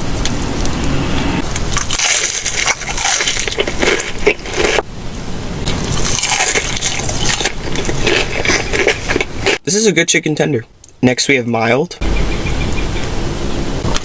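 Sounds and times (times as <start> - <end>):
chewing crunchy fried chicken: 1.5 - 4.9, 5.7 - 9.6.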